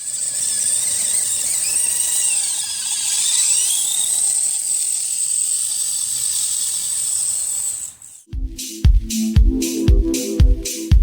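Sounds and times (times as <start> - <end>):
rc car electric motor whining: 0.0 - 8.3.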